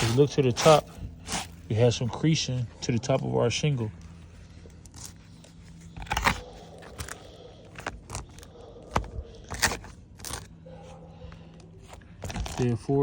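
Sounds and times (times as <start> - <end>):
scraping on roof shingles: 0.0 - 1.7.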